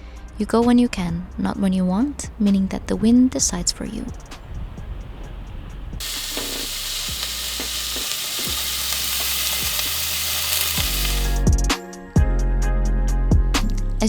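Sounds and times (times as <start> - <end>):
steady dense hiss: 2.2 - 11.5.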